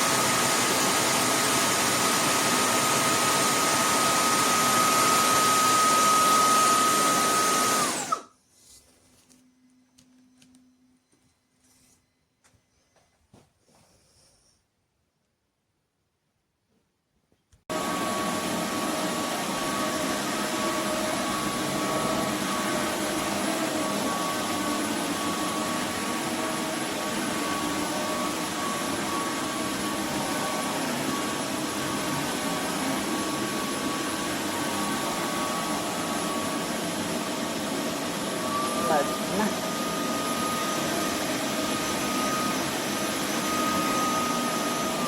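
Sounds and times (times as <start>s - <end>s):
vacuum whine: 0.0s - 8.4s, 17.7s - 45.0s
vacuum cleaner whirring: 0.0s - 12.6s, 17.7s - 45.0s.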